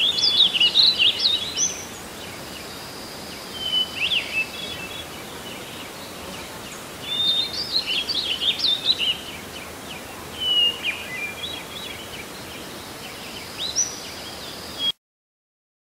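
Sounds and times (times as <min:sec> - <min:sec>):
birds chirping and singing: 0:00.0 - 0:14.9
steady background hiss: 0:00.0 - 0:14.9.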